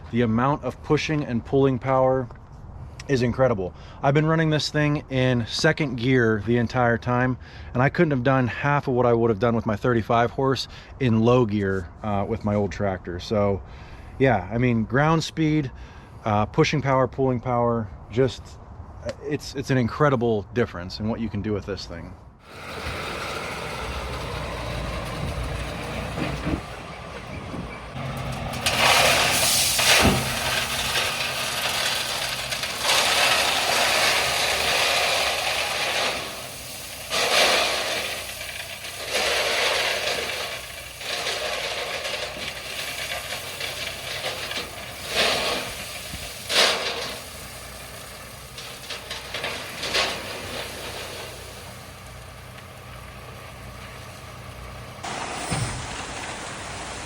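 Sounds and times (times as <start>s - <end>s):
bucket scraping and grinding gravel: 22.4s - 57.0s
tractor diesel engine under load: 22.4s - 57.0s.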